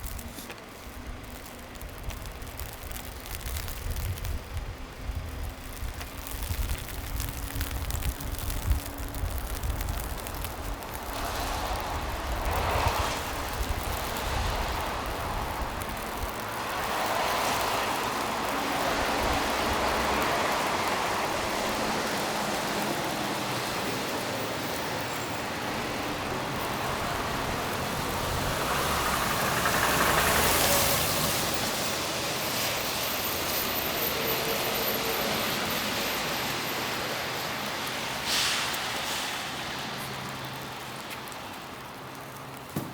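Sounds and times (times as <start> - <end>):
cars passing: 0.0 - 42.9.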